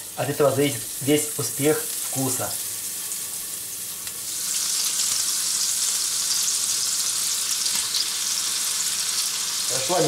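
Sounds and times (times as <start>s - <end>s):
meat sizzling in butter: 0.0s - 10.0s.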